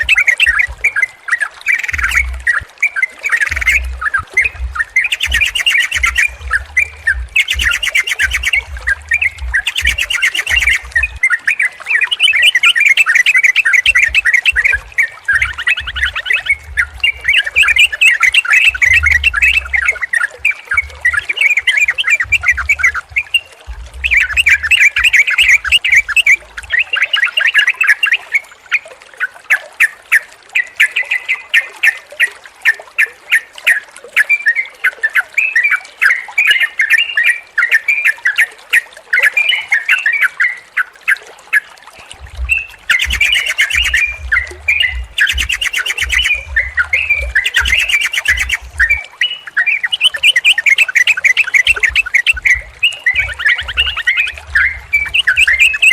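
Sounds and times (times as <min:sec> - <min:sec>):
low rumbling thumps: 0:01.9 - 0:02.7, 0:03.5 - 0:11.2, 0:13.9 - 0:18.0, 0:18.7 - 0:26.8, 0:42.0 - 0:49.0, 0:51.7 - 0:55.9
birds chattering and calling: 0:03.3 - 0:26.9, 0:42.1 - 0:55.9.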